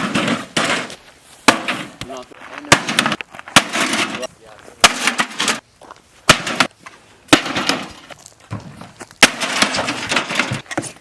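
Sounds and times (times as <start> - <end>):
breaking metal and plastic crash: 7.3 - 8.1, 9.2 - 11.0.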